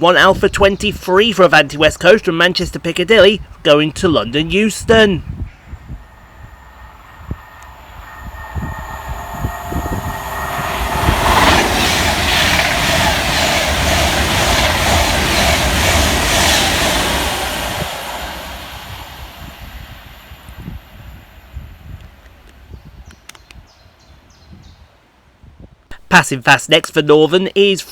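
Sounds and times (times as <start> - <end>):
electric train roaring past: 1.3 - 22.8
high steady tones: 3.1 - 21.9.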